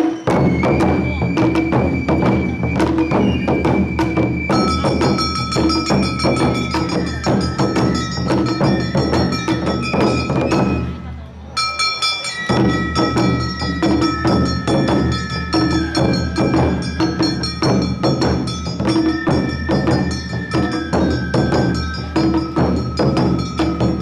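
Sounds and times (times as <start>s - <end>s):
fast drum strokes: 0.0s - 11.1s, 12.3s - 24.0s
high bamboo flute notes: 0.0s - 24.0s
metallic hand gong beating: 4.6s - 10.9s, 11.6s - 21.3s.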